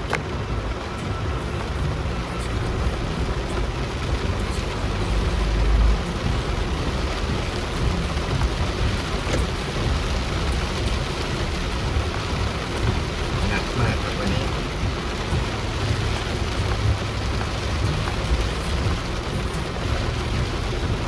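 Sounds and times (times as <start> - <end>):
rain and spray hissing: 0.0 - 21.0
vehicle engine and road rumble: 0.0 - 21.0.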